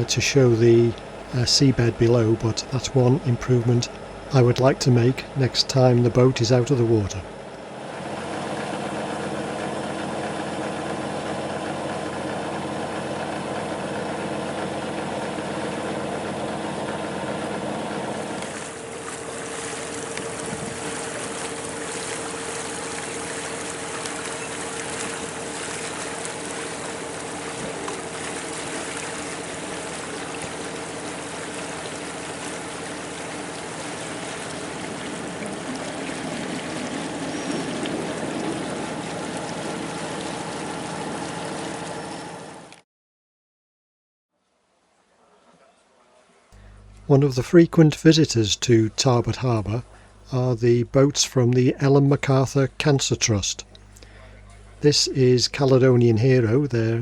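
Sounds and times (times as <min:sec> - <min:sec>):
rushing water-like noise: 0:00.0 - 0:09.9, 0:18.1 - 0:42.6
boat engine humming: 0:00.0 - 0:42.8, 0:46.6 - 0:57.0.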